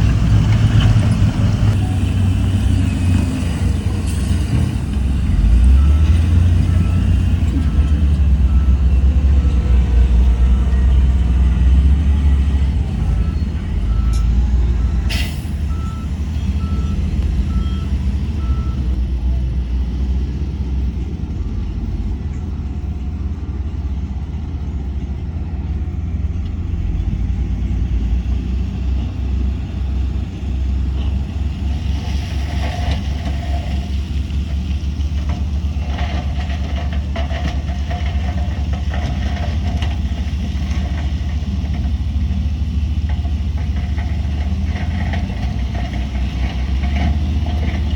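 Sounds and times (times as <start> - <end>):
diesel machinery running: 0.0 - 47.9
reversing alarm beeping: 10.3 - 19.0.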